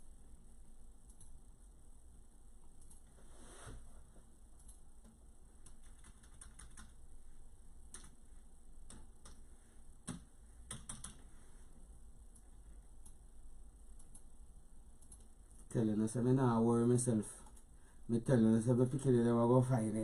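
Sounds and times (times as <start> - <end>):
typing clicks and taps: 4.6 - 7.0, 7.9 - 8.2, 10.0 - 11.3, 15.0 - 15.7.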